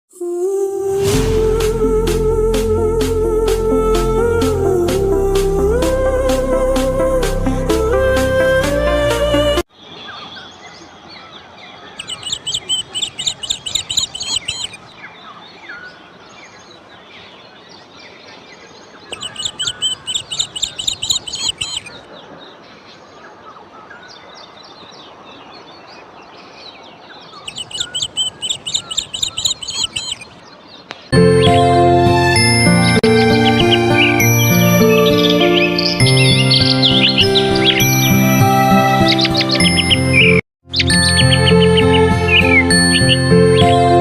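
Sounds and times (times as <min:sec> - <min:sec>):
other birds calling faintly: 0:09.7 - 0:31.1
songbird rapid high chirps: 0:09.8 - 0:17.2, 0:19.0 - 0:22.1, 0:26.8 - 0:31.6, 0:33.4 - 0:44.0.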